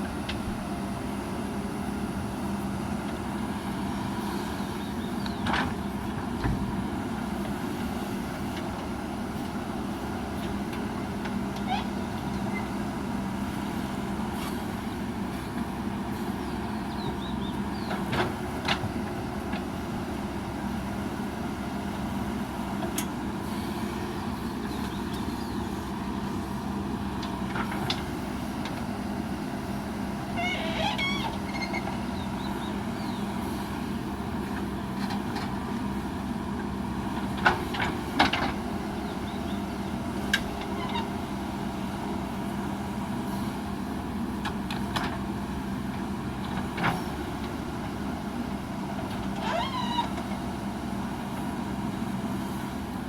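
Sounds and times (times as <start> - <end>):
heavy machinery humming: 0.0 - 53.0
squeaky chirping: 30.4 - 32.3.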